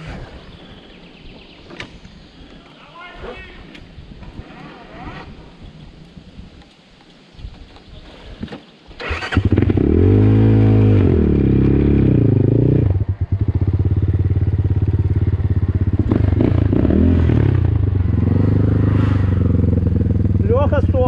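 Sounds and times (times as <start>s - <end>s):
motorcycle engine revving: 9.0s - 21.0s.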